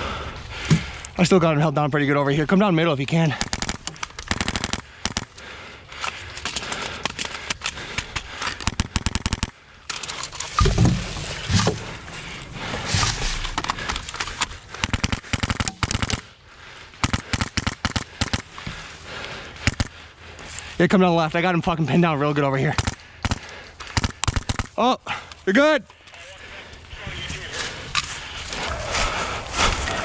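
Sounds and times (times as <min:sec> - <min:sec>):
airsoft rifle full-auto bursts: 0:03.3 - 0:05.4, 0:08.6 - 0:09.5, 0:14.8 - 0:16.3, 0:17.0 - 0:18.6, 0:19.6 - 0:20.0, 0:22.8 - 0:24.7.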